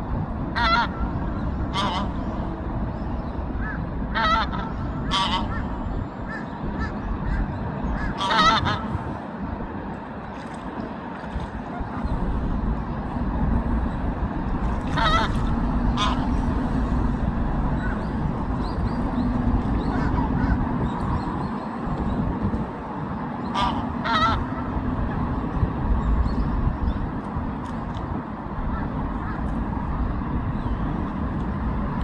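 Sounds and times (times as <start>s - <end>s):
low rumble: 0.0s - 22.9s
coots honking calls: 4.1s - 7.0s, 8.0s - 8.9s, 14.8s - 16.4s, 23.5s - 24.5s.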